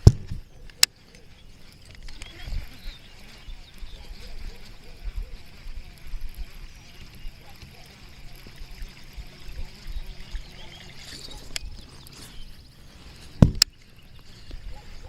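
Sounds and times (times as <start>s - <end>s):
sharp knocks on hull: 0.0s - 0.4s, 13.4s - 13.7s
water lapping against kayak: 0.0s - 15.0s.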